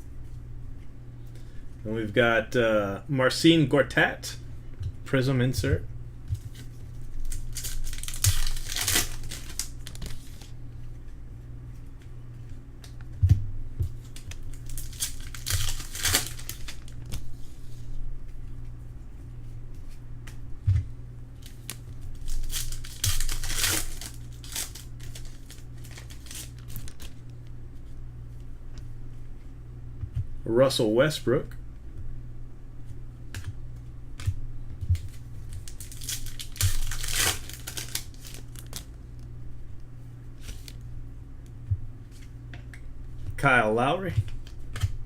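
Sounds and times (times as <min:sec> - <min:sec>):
steady low hum: 0:00.0 - 0:45.0
wrappers crinkling and tearing: 0:06.4 - 0:10.5, 0:13.9 - 0:17.3, 0:21.4 - 0:27.3, 0:35.0 - 0:39.0.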